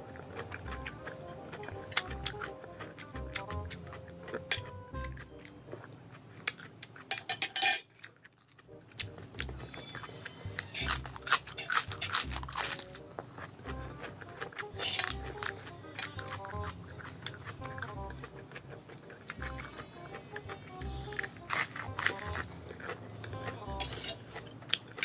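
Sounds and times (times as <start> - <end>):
crunching and chewing vegetables: 0.0 - 25.0
faint background music: 0.0 - 25.0
spoon scraping ceramic plate: 7.1 - 7.8, 14.8 - 15.2, 23.8 - 24.6.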